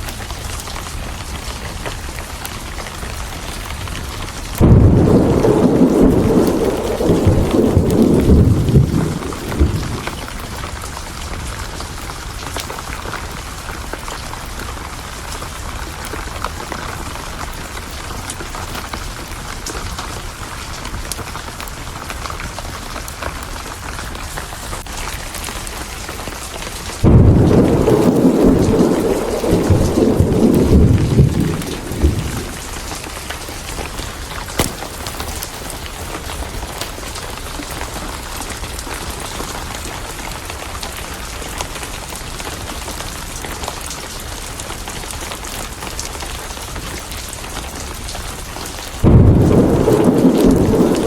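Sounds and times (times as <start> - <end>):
heavy rain: 0.0 - 51.0
thunder rumbling: 4.0 - 12.4, 26.8 - 39.2, 49.0 - 51.0
thunderclap: 4.4 - 11.6, 27.0 - 37.7, 49.0 - 51.0.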